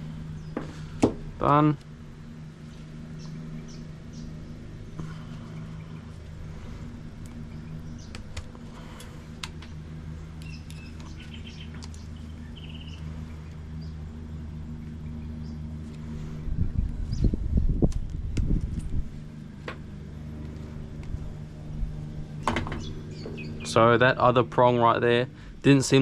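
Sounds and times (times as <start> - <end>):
handling rumble: 0.0 - 26.0
steady low hum: 0.0 - 26.0
bird chirps: 3.1 - 4.6, 10.4 - 13.1, 22.8 - 23.8.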